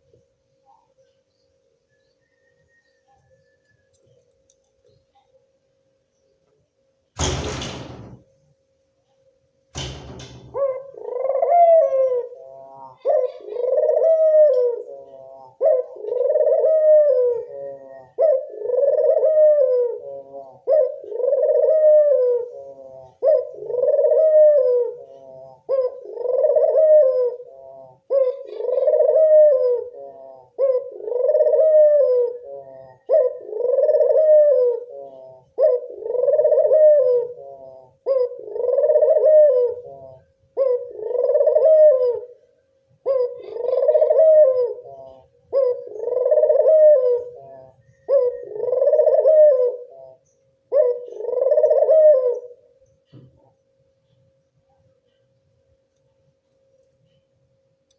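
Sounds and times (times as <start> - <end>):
dove cooing: 10.4 - 53.6.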